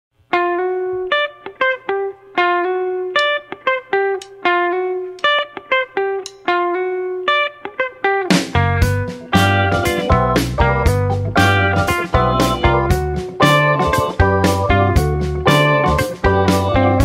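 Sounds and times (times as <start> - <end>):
guitar picking a melody: 0.2 - 17.0
full band with drums: 8.3 - 17.0.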